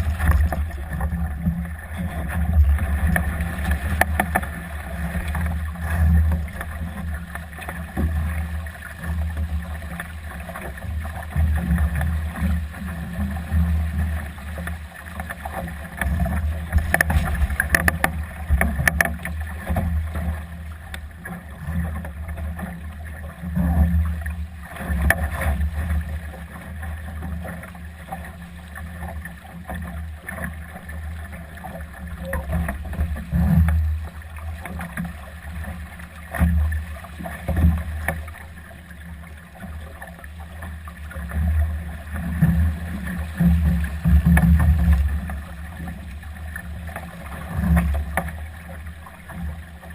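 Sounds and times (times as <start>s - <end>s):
boat clicks and knocks: 0.0s - 7.0s, 14.6s - 22.2s
water rushing along hull: 0.0s - 49.9s.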